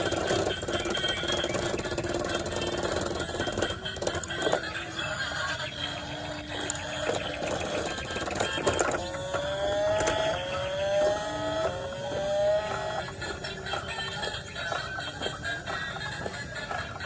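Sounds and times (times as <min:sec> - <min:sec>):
small electric motor whirring: 0:00.0 - 0:17.0
rising electronic tones: 0:05.7 - 0:14.6.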